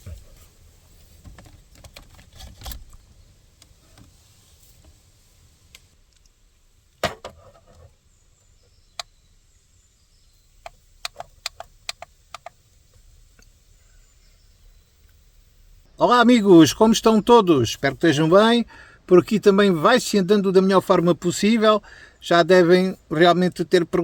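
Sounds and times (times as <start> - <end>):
sharp clicks: 10.6 - 13.6.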